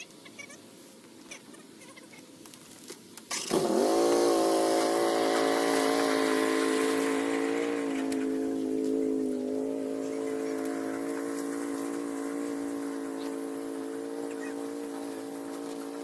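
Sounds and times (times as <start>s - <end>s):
small engine starting and running: 3.3s - 16.0s.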